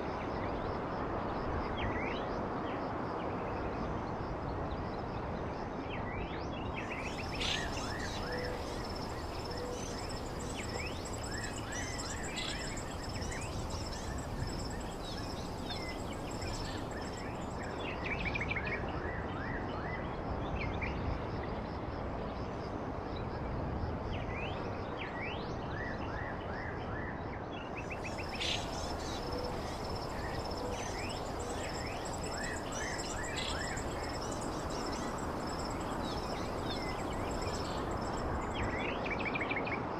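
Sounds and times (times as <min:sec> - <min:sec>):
low rushing background noise: 0:06.6 - 0:19.0, 0:27.8 - 0:39.9
small birds chirping: 0:06.8 - 0:18.0, 0:27.9 - 0:38.8
thin high steady tone: 0:28.1 - 0:38.6.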